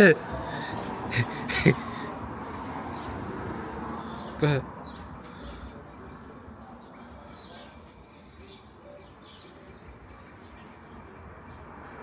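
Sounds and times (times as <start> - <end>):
small bird chirping: 7.1 - 9.5.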